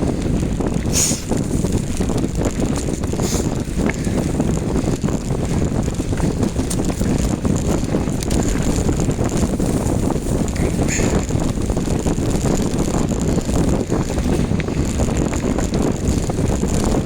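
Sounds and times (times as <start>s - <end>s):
bicycle rattles and clicks: 0.0s - 17.0s
wind rumble on microphone: 0.0s - 17.0s
hissing gusts: 0.8s - 1.6s.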